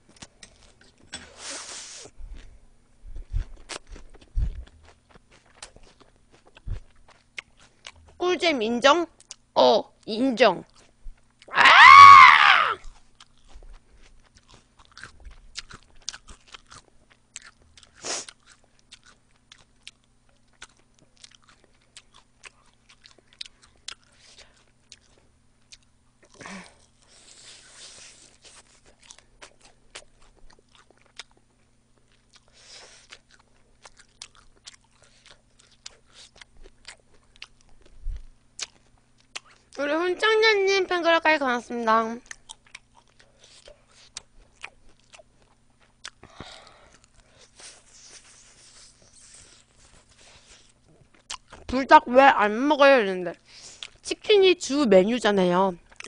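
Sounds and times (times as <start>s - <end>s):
crunchy chewing of fried chicken: 3.2s - 8.2s, 10.6s - 39.8s, 42.2s - 51.7s, 53.5s - 54.1s, 55.8s - 56.0s
high-pitched vocal squeal: 11.5s - 12.8s.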